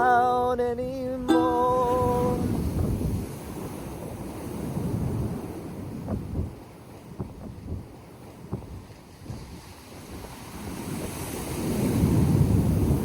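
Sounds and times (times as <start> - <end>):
ocean surf: 0.0 - 0.6, 1.3 - 5.8, 9.4 - 13.0
wind buffeting microphone: 0.0 - 13.0.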